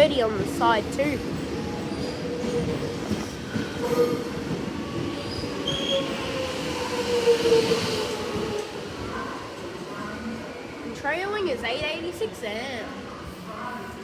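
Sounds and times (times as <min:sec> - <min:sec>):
train rumble: 0:00.0 - 0:14.0
train wheels squealing: 0:01.4 - 0:09.5.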